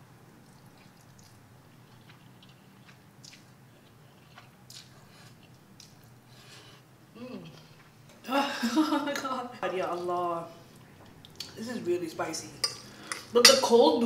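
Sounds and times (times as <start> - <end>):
low steady hum: 0.0 - 14.0
chewing noodles: 0.4 - 6.2.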